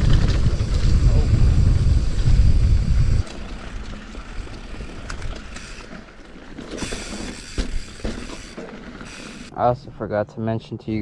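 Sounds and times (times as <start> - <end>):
wind buffeting microphone: 0.0 - 5.8.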